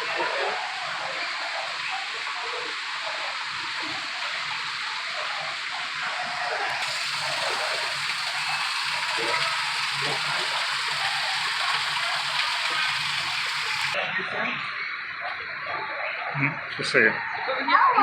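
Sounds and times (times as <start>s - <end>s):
falling water rushing: 6.7s - 14.0s.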